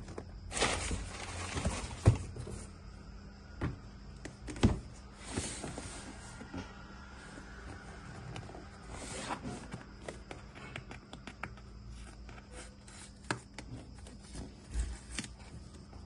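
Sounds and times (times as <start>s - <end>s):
packaging rustling: 0.5s - 2.2s.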